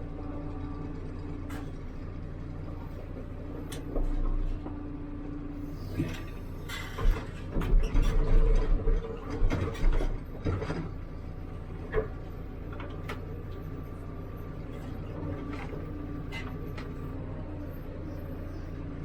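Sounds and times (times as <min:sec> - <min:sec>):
backhoe loader running: 0:00.0 - 0:19.0
clunks and knocks: 0:02.8 - 0:04.8, 0:05.8 - 0:13.7, 0:14.7 - 0:17.1.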